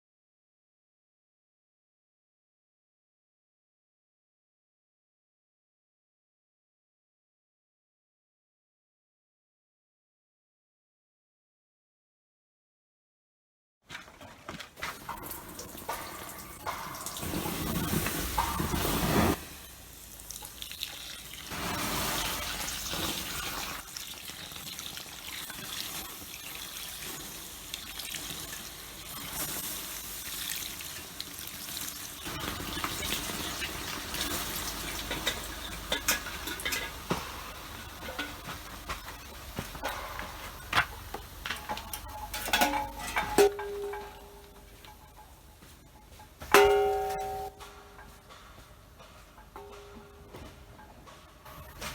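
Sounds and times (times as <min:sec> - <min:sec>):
water pouring in a stream: 0:14.9 - 0:36.7
steady hiss: 0:14.9 - 0:51.9.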